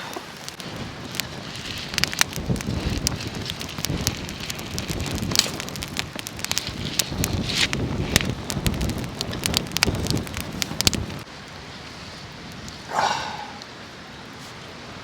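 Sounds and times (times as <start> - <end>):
sharp pops and crackles: 0.0 - 11.3
wind buffeting the microphone: 0.0 - 11.3
steady rain: 0.0 - 15.0.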